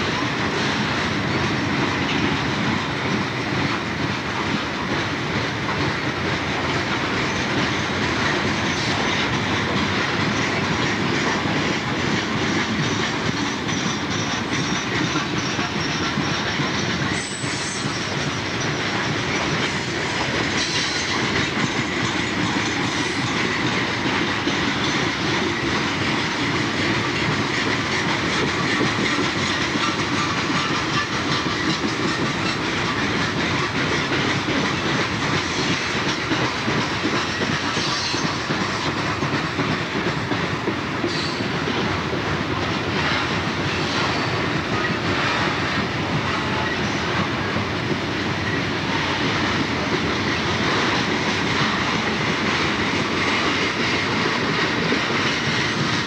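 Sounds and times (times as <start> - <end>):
freight train rumble: 0.0 - 56.0.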